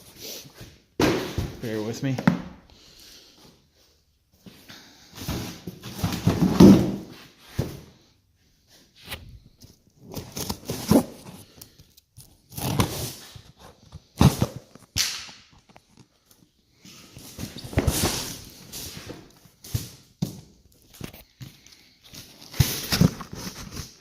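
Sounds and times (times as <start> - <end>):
package rustling and scraping: 9.0 - 14.9, 20.8 - 24.0.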